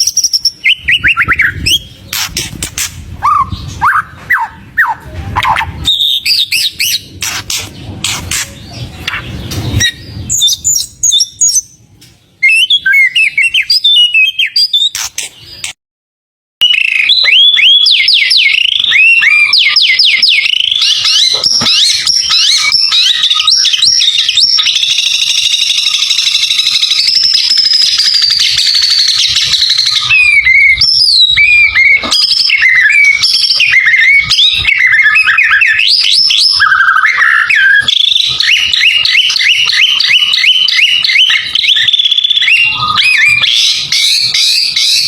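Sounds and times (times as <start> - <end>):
bird whistles and high trill: 0.0 - 11.8, 12.4 - 15.8, 16.6 - 45.0
songbird chirps and clicks: 10.6 - 15.8.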